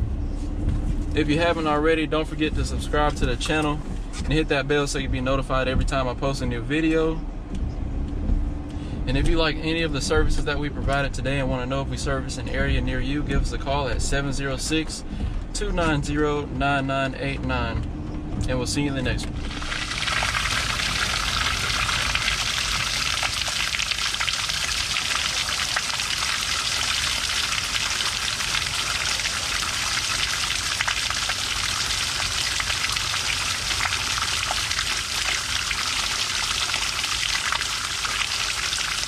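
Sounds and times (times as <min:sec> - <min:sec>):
rain on hard surface: 0:19.3 - 0:39.0.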